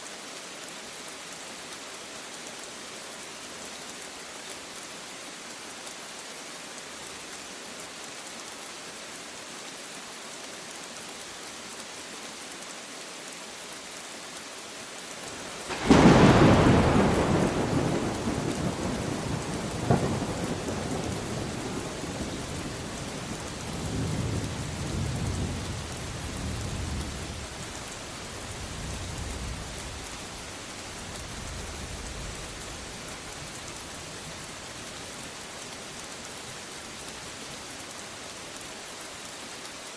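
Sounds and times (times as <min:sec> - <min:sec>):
steady rain: 0:00.0 - 0:39.9
thunder rumbles: 0:15.5 - 0:30.1
close thunderclap: 0:15.6 - 0:27.5.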